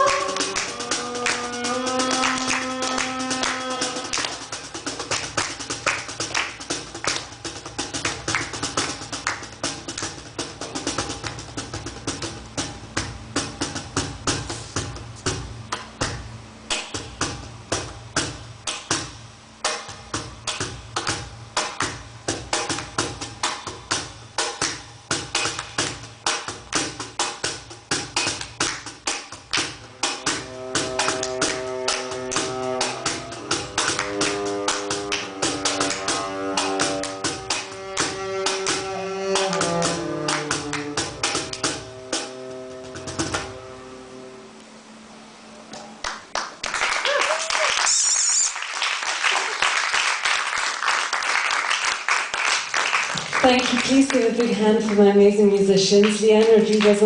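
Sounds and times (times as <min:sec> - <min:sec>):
cello notes: 0:00.0 - 0:04.4, 0:29.8 - 0:45.5
percussion drum strikes: 0:00.0 - 0:43.6.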